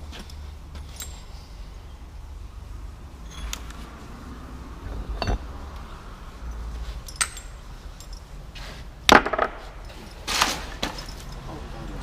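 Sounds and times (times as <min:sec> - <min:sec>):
low steady hum: 0:00.0 - 0:09.1
metal tools clinking: 0:00.2 - 0:01.4, 0:04.9 - 0:05.5, 0:06.5 - 0:08.4, 0:09.7 - 0:11.6.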